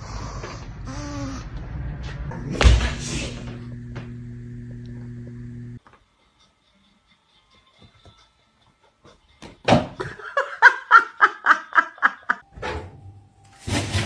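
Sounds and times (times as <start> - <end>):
person laughing: 10.0 - 12.4.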